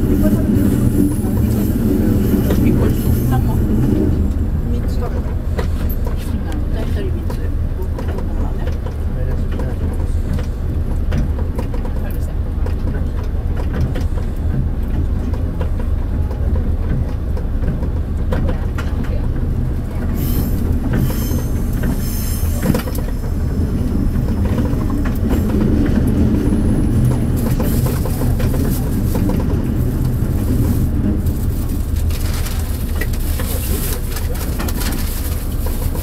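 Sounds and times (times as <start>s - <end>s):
railcar low rumble: 0.0s - 36.0s
wheels clicking over rail joints: 0.0s - 36.0s.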